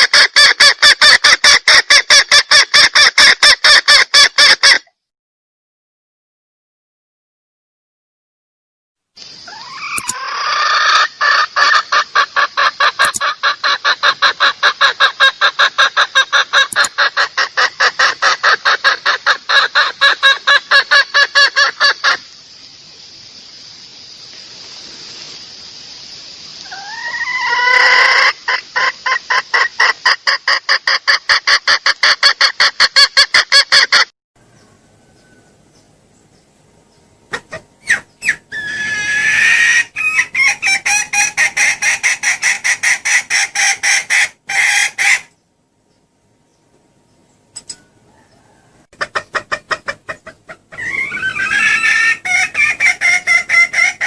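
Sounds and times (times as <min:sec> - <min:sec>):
hen clucking rapidly: 0:00.0 - 0:04.9, 0:09.5 - 0:22.2, 0:26.6 - 0:34.1, 0:37.3 - 0:45.3, 0:48.1 - 0:54.0
hen rising call: 0:09.3 - 0:22.2, 0:26.5 - 0:30.7, 0:37.3 - 0:45.4, 0:49.8 - 0:54.0.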